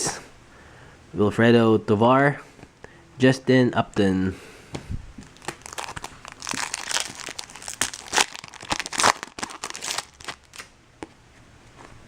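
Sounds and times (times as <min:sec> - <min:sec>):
foil wrapper crinkling: 0:05.2 - 0:10.7.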